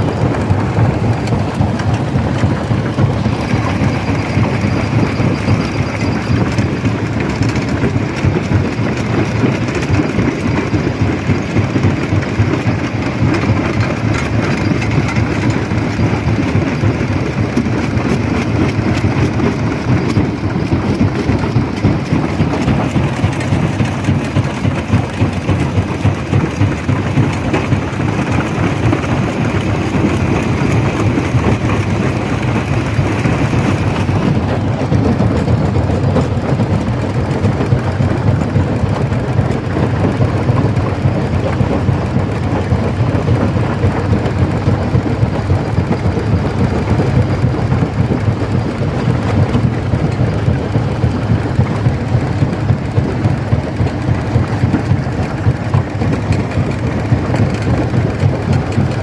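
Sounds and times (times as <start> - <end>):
stone crusher rumbling: 0.0 - 45.8.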